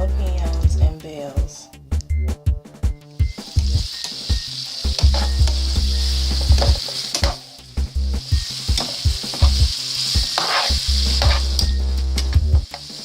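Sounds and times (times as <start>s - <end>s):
chicken sizzling in frying pan: 3.0s - 13.0s
utensil clicking against pan: 3.5s - 5.6s, 6.3s - 7.5s, 8.4s - 13.0s.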